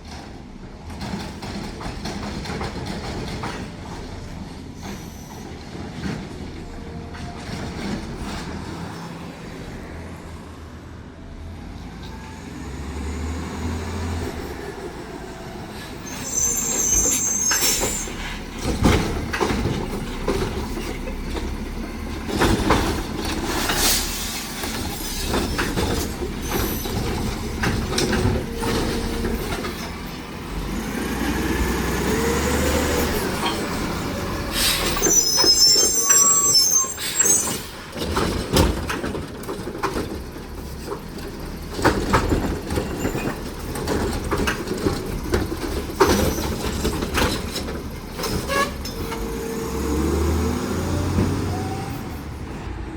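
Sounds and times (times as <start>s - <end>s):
garbage truck clanks and bangs: 0.0s - 9.4s, 13.2s - 52.9s
truck engine: 0.0s - 52.9s
high squeals: 15.7s - 18.6s, 31.8s - 37.8s.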